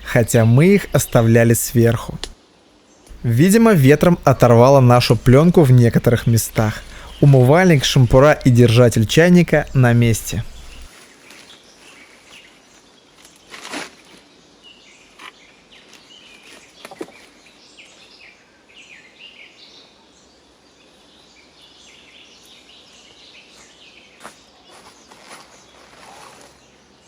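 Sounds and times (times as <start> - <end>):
small birds chirping: 0.0 - 2.4, 3.0 - 13.5
sharp clicks or snaps: 2.1 - 2.4.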